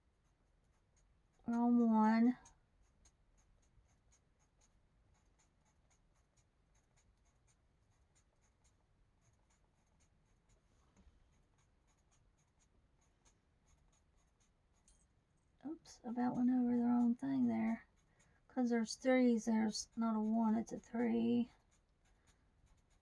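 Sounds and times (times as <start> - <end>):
colouring tool scratching paper: 15.8 - 23.0.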